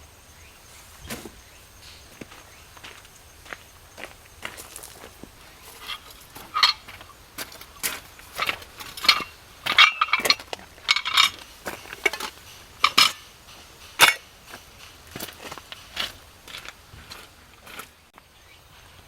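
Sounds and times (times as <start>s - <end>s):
metal objects clinking: 4.6s - 17.9s
metallic ring: 5.6s - 17.8s.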